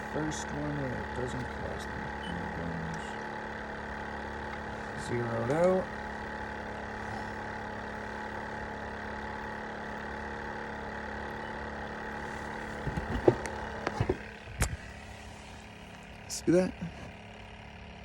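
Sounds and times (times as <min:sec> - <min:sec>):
motor hum: 0:00.0 - 0:18.0
sharp knocks and clatters: 0:12.6 - 0:14.8.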